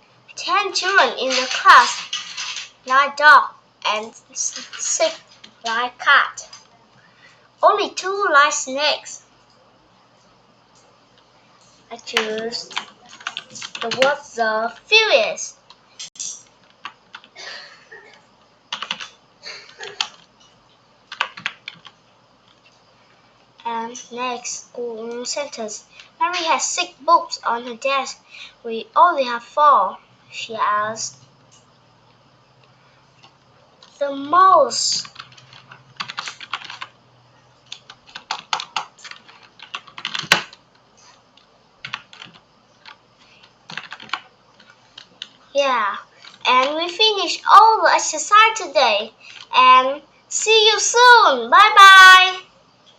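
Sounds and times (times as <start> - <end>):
typing on computer keyboard: 12.2 - 14.1, 18.7 - 20.3, 21.1 - 22.0, 35.0 - 36.9, 37.6 - 40.6, 41.4 - 45.4.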